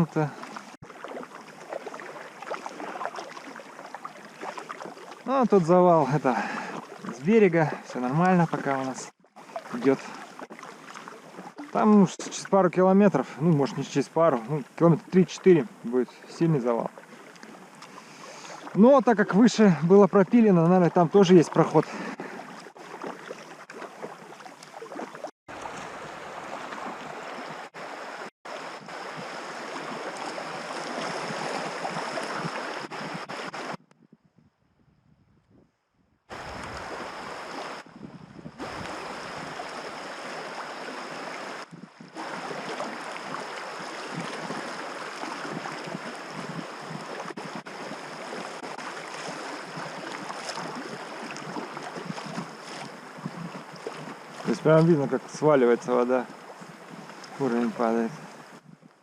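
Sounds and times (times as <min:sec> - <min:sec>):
river water rushing and splashing: 0:00.0 - 0:33.8, 0:36.3 - 0:37.9, 0:38.6 - 0:58.5
wind on microphone: 0:28.8 - 0:40.0, 0:41.1 - 0:54.7, 0:56.6 - 0:59.0.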